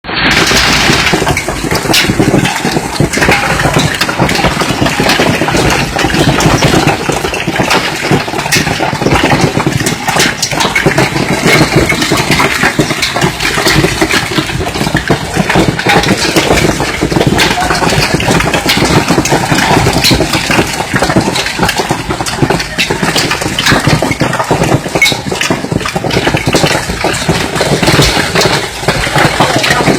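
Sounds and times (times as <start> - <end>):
rain falling: 0.0 - 29.9
hail pelting: 0.1 - 29.9.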